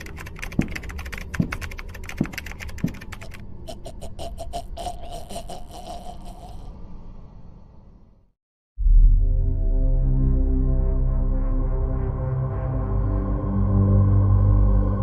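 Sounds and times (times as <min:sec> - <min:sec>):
rapid typing on keyboard: 0:00.0 - 0:03.4.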